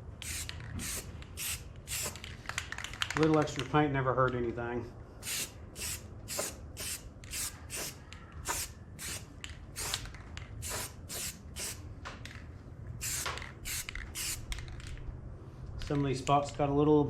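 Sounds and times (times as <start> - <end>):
spray paint can hissing: 0.2 - 2.4, 5.2 - 11.8, 13.0 - 14.7.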